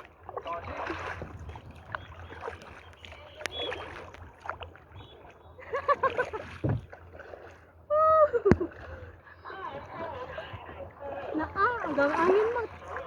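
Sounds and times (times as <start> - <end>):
paddle splashing in water: 0.0 - 13.0.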